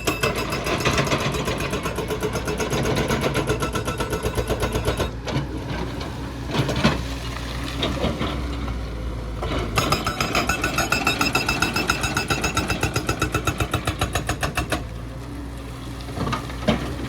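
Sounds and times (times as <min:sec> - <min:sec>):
hydraulic breaker hammering: 0:00.0 - 0:05.1, 0:09.8 - 0:14.8
diesel engine running: 0:00.0 - 0:13.9.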